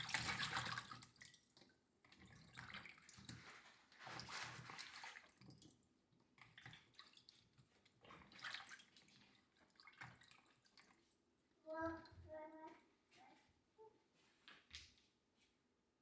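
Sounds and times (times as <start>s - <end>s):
water splashing and dripping: 0.0s - 12.3s.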